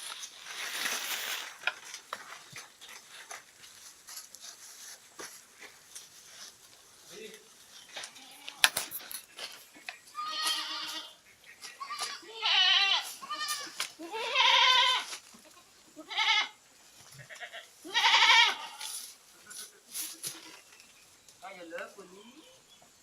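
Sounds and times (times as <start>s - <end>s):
goats bleating: 8.0s - 8.7s, 10.1s - 16.6s, 17.2s - 19.0s.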